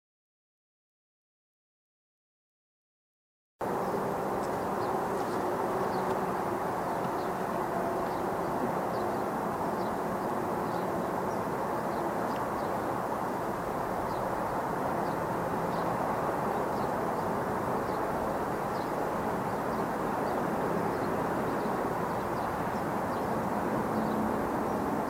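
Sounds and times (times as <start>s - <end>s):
freight train rumbling on bridge: 3.6s - 25.0s.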